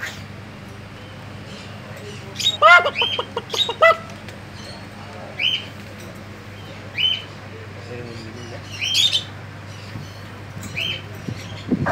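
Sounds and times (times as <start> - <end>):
low electrical hum: 0.0 - 11.9
bird chirping: 0.9 - 5.7.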